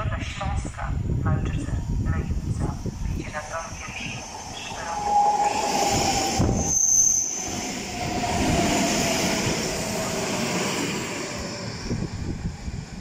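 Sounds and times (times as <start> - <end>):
train wheels on rails: 2.5 - 13.0
brief high squeal: 4.9 - 7.8.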